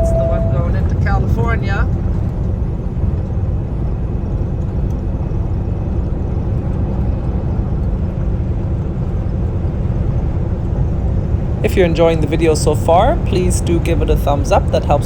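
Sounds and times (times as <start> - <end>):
road noise: 0.0 - 15.0
truck engine rumble: 0.0 - 15.0.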